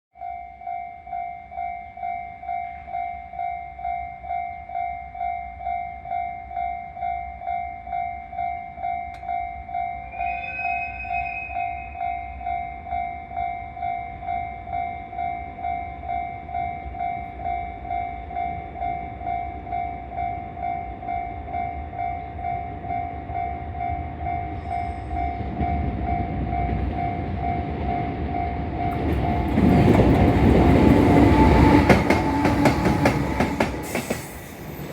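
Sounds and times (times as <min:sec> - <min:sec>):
level-crossing alarm ringing: 0:00.2 - 0:34.9
locomotive whistle: 0:10.1 - 0:12.1, 0:30.8 - 0:34.9
freight train rumble: 0:14.1 - 0:34.9.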